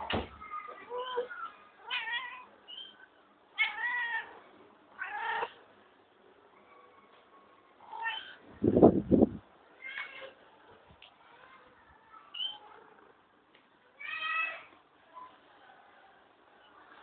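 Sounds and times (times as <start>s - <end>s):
cat meowing: 1.0s - 2.5s.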